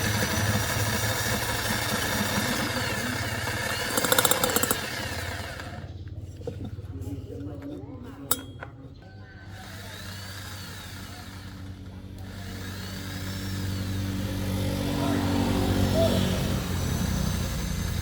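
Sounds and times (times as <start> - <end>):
motorcycle engine running: 0.0 - 9.4, 10.7 - 18.0.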